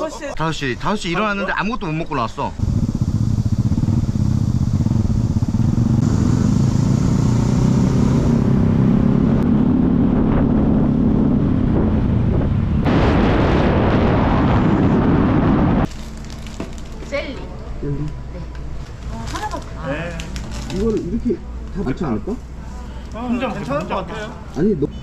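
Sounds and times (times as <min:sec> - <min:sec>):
vehicle engine droning: 0:02.4 - 0:13.0
wind noise: 0:08.3 - 0:15.9.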